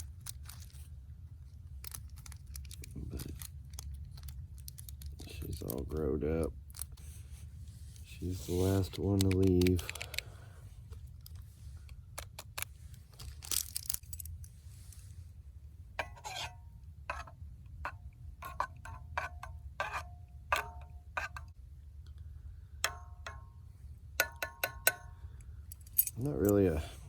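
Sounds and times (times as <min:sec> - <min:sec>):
metal clinking and tapping: 0:16.0 - 0:21.5, 0:22.8 - 0:23.6, 0:24.2 - 0:26.9.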